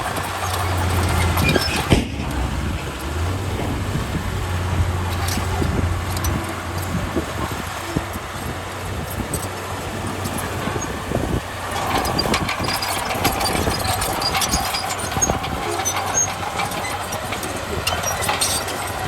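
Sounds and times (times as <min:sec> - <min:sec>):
diesel engine running: 0:00.0 - 0:19.0
metallic clanks and knocks: 0:00.2 - 0:08.5.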